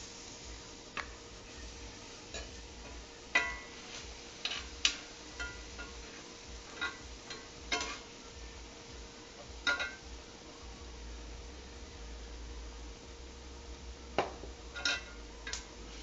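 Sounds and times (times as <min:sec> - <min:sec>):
dishes and utensils clinking: 0:02.3 - 0:08.1, 0:09.6 - 0:10.0, 0:14.7 - 0:15.7.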